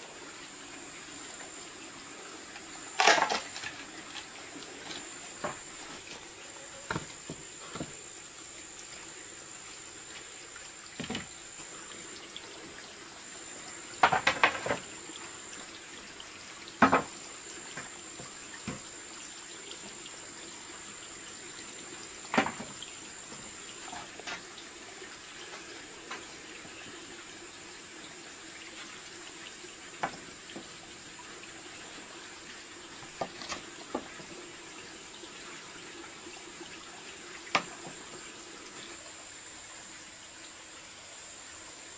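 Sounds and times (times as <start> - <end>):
running water: 0.0 - 41.9.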